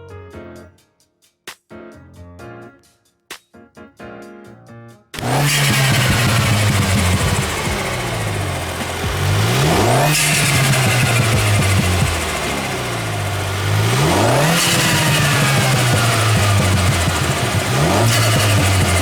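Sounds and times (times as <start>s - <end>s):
car engine accelerating: 5.2s - 19.0s.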